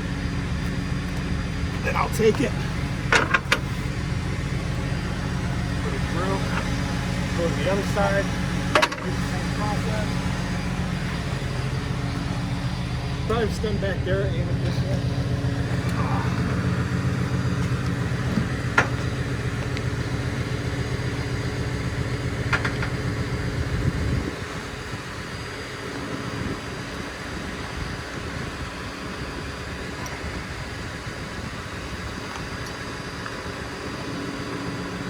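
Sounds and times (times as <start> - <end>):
vehicle engine idling: 0.0 - 35.0.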